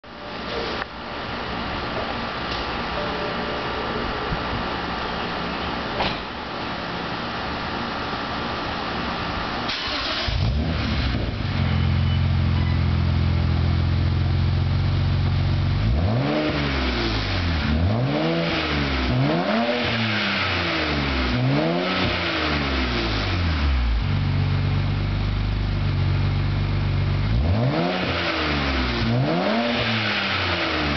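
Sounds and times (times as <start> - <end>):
car engine idling: 0.1 - 16.0, 22.9 - 27.4
car engine starting: 7.5 - 30.9
car engine revving: 9.7 - 24.7, 27.0 - 30.9.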